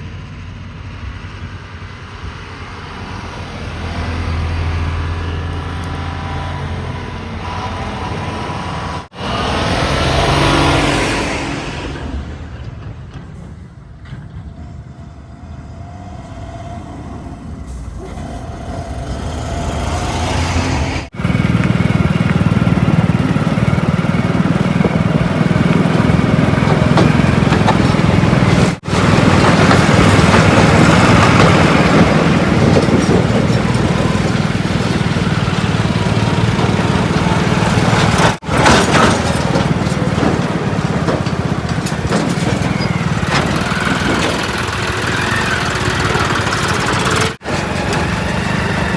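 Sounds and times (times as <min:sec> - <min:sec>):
heavy diesel engines running: 0:00.0 - 0:48.9.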